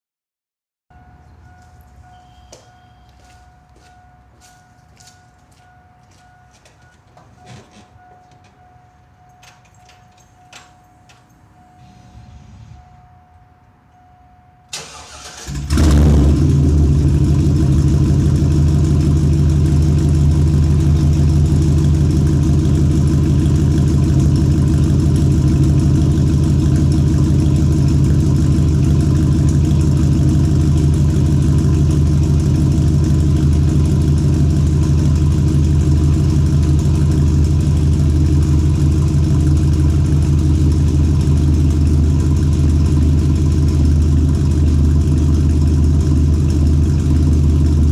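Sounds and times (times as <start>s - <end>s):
engine cranking: 14.7s - 47.9s
engine idling: 14.7s - 47.9s.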